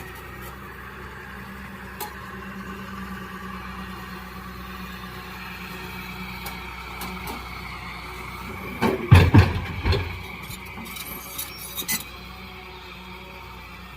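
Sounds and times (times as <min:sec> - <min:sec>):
excavator diesel engine running: 0:00.0 - 0:13.9
loud thumps and knocks: 0:08.8 - 0:10.3.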